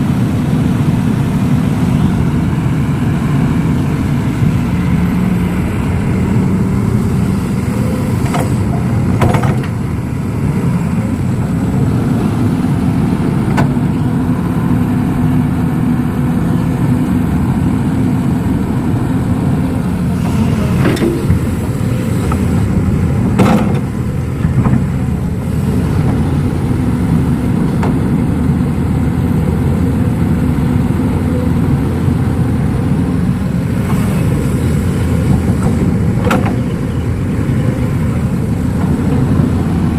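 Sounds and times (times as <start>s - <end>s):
heavy diesel engine running: 0.0s - 39.9s
sharp knocks and clanks: 8.2s - 9.8s, 23.3s - 24.9s, 35.6s - 36.8s.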